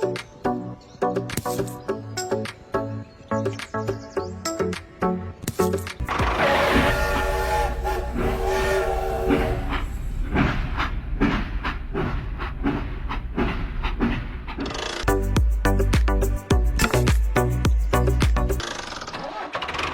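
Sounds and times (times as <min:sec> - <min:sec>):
music: 0:00.0 - 0:07.0, 0:15.1 - 0:18.6
train horn: 0:06.1 - 0:10.1
train wheels clickety-clack: 0:06.2 - 0:15.1.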